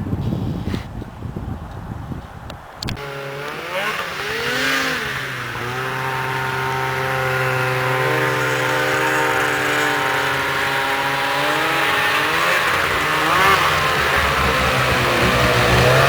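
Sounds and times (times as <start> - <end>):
vehicle engine revving: 2.8 - 16.0
low rumbling noise: 4.2 - 16.0.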